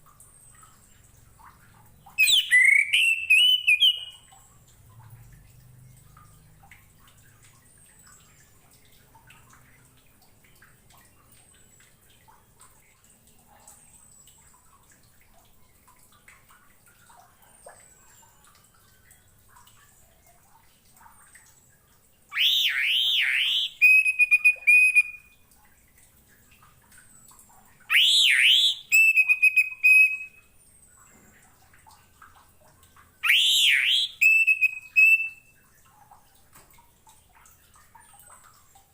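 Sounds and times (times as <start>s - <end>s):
thrush singing whistled phrases: 2.2s - 4.2s, 22.3s - 25.3s, 27.9s - 30.4s, 33.2s - 35.5s
faint high chirps: 2.2s - 4.4s, 22.3s - 25.3s, 27.9s - 31.4s, 33.2s - 35.6s.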